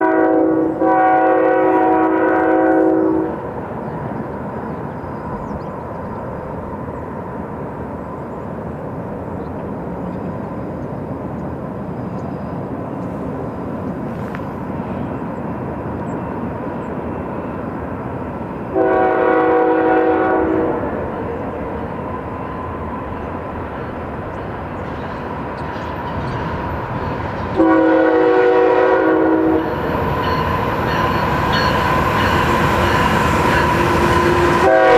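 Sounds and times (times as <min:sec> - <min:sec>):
train horn blasts: 0:00.0 - 0:03.4, 0:18.7 - 0:21.1, 0:27.5 - 0:34.9
train rumbling past: 0:00.0 - 0:34.9.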